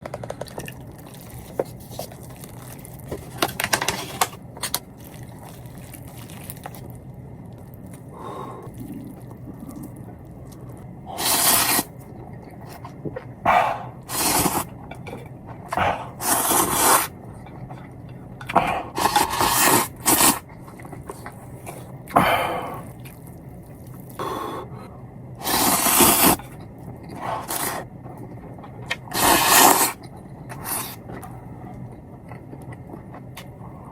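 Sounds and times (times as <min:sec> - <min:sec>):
noodles being slurped: 0:07.9 - 0:12.0, 0:13.9 - 0:14.7, 0:15.7 - 0:17.2, 0:18.5 - 0:23.2, 0:25.4 - 0:27.9, 0:28.9 - 0:31.1.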